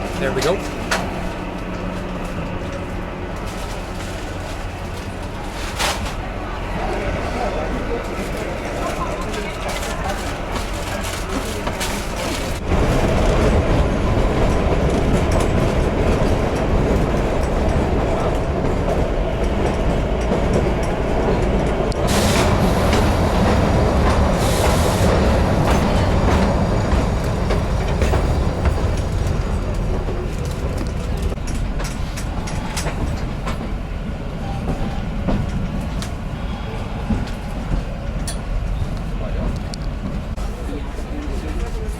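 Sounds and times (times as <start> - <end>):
train rumble: 0.0 - 41.9
wheels clacking over rail joints: 8.1 - 33.9.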